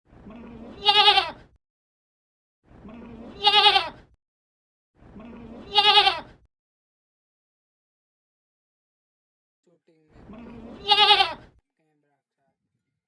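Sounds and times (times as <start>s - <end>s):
goat bleating: 0.7s - 1.4s, 3.4s - 4.0s, 5.5s - 6.4s, 10.3s - 11.5s.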